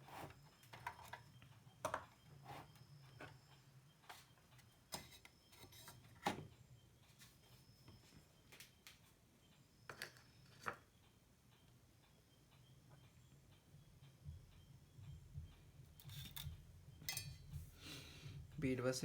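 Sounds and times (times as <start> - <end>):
faint low hum: 0.0 - 19.0
small tools clicking and tapping: 15.9 - 17.6.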